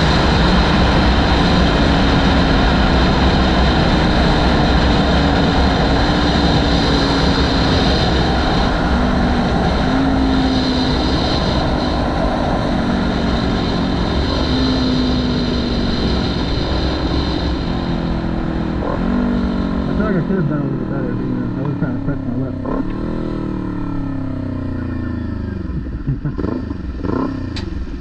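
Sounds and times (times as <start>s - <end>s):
motorcycle engine hum: 0.0s - 28.0s
wind rumbling on microphone: 0.0s - 28.0s.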